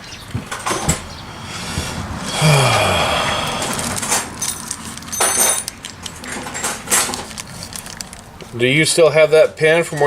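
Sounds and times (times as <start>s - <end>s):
metal hand tools clattering: 4.0s - 8.0s
metallic clink and ring: 4.4s - 5.7s.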